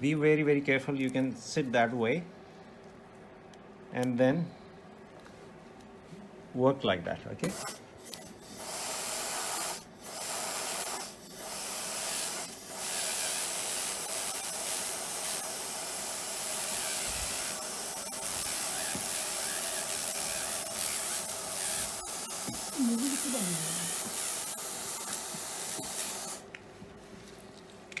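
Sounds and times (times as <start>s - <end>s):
dental handpiece whirring: 7.4s - 26.5s.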